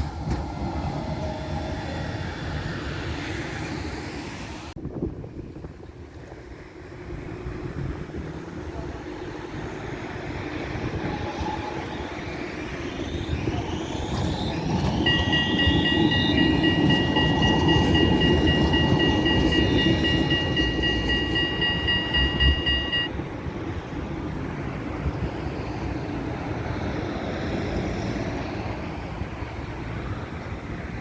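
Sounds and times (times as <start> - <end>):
tram rumbling past: 0.0 - 4.6, 5.6 - 31.0
high-pitched two-note tone: 15.0 - 23.1.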